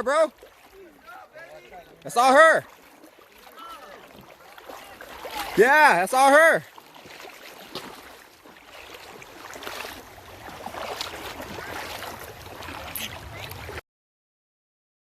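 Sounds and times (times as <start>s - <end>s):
water: 0.0s - 13.8s
wind: 0.0s - 13.8s.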